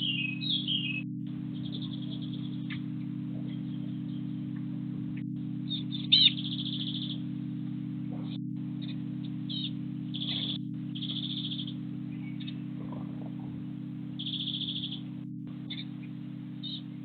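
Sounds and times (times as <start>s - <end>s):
small bird chirping and trilling: 0.0s - 1.0s, 1.6s - 4.3s, 5.7s - 7.2s, 8.8s - 13.4s, 14.2s - 15.1s, 15.7s - 17.0s
steady low hum: 0.0s - 17.0s.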